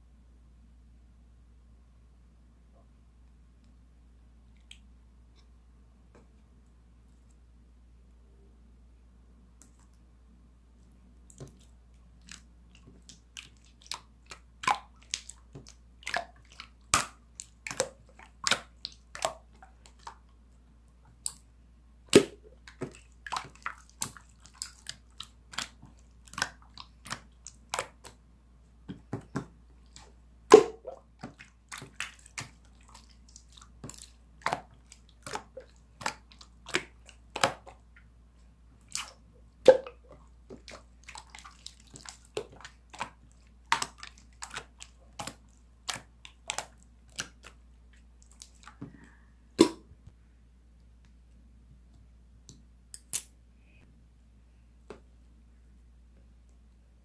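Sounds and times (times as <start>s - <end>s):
slime squeezed with wet pops: 11.2s - 20.3s, 22.1s - 28.2s, 28.9s - 38.1s, 38.8s - 48.8s, 49.6s - 50.0s.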